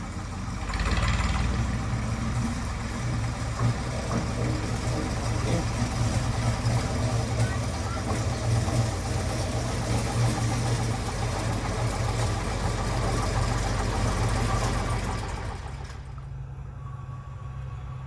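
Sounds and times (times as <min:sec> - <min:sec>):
diesel locomotive engine knocking: 0:00.0 - 0:18.0.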